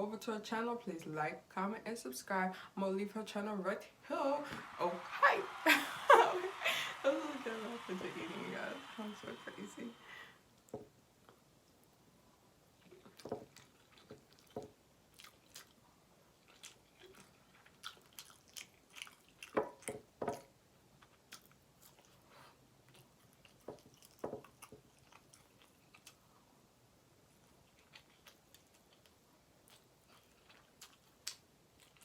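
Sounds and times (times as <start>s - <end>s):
person chewing food: 12.8s - 26.5s, 27.3s - 32.0s.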